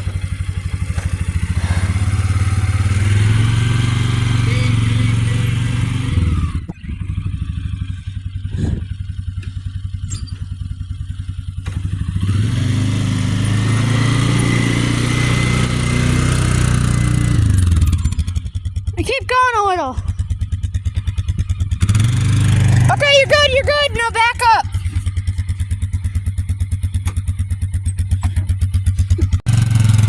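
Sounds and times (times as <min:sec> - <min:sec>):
small engine running: 0:00.0 - 0:08.8, 0:11.7 - 0:18.5.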